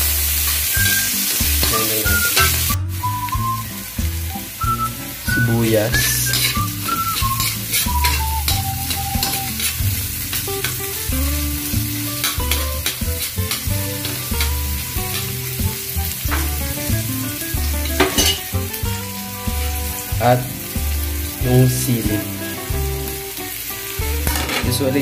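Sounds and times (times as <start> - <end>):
aromatics sizzling in oil: 0.0 - 25.0
soft background music: 0.3 - 25.0
spatula scraping a wok: 6.0 - 11.4, 12.0 - 16.5, 19.1 - 20.2.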